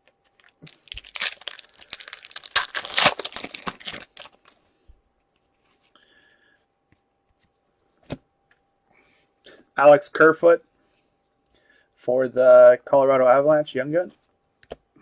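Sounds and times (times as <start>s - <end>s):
foil wrapper tearing and crinkling: 0.4s - 4.6s.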